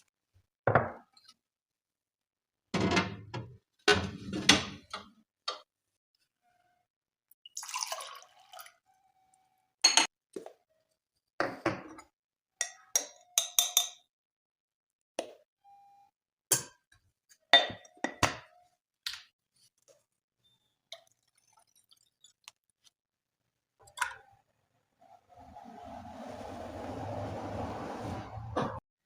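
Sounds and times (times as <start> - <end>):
dishes and glassware clinking: 9.9 - 10.1, 17.6 - 18.5.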